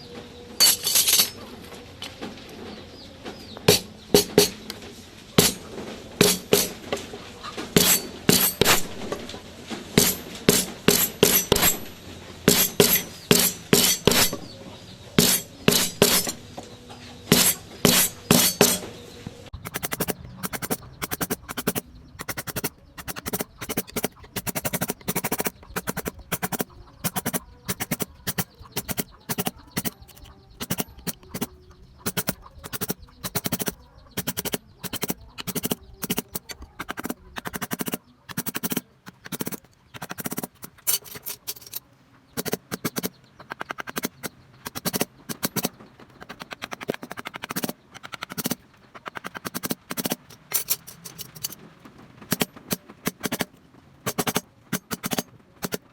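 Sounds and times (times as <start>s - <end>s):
mallet tapping chisel: 6.2s - 6.8s, 7.8s - 9.3s, 10.0s - 14.6s, 15.2s - 16.5s, 17.3s - 18.9s, 19.6s - 41.8s.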